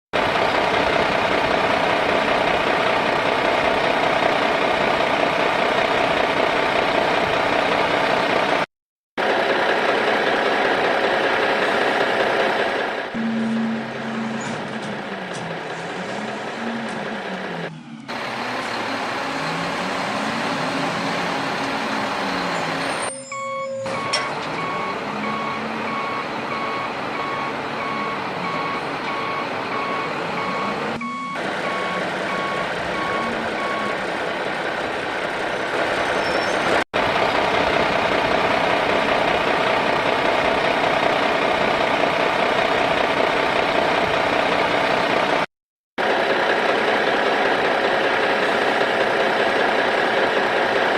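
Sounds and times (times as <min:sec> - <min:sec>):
engine-like rumble: 0:09.2 - 0:23.0
reversing beeper: 0:13.2 - 0:14.7, 0:17.7 - 0:34.0.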